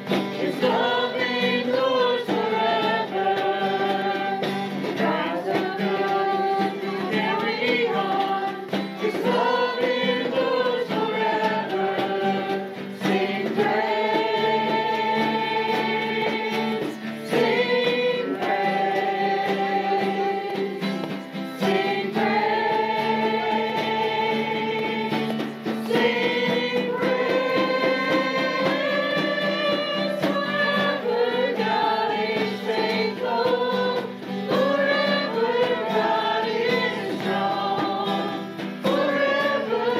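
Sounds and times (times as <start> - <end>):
congregation singing praise song: 0.0 - 39.9
instrumental accompaniment: 0.0 - 39.9.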